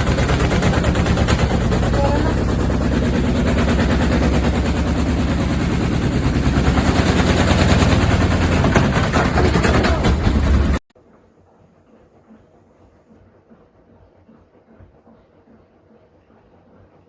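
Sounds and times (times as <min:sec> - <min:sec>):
washing machine spinning: 0:00.0 - 0:10.9.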